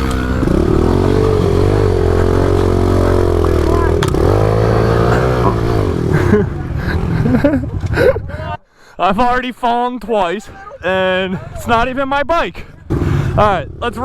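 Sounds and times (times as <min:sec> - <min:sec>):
pit bike engine revving: 0:00.0 - 0:08.1, 0:12.8 - 0:14.0.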